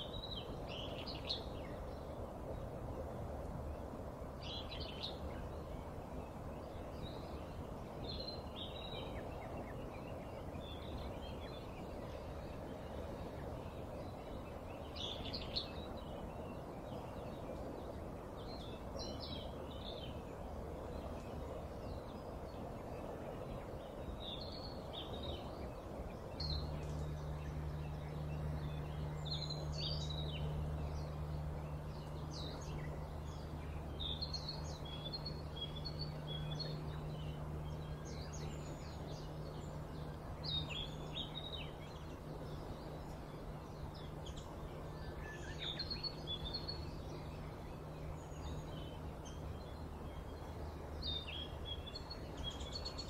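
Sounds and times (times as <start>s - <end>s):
low steady hum: 0.0s - 53.0s
small birds chirping: 0.0s - 53.0s
steady background noise: 0.0s - 53.0s.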